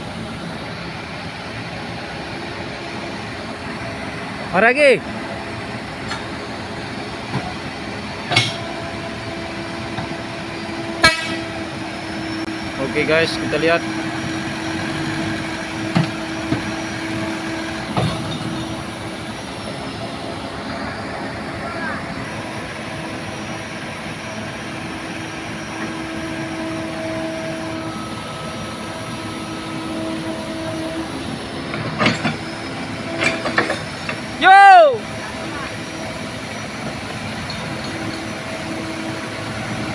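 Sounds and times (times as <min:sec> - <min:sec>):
heavy vehicle engine running: 0:00.0 - 0:39.9
metal clanks: 0:11.0 - 0:11.5.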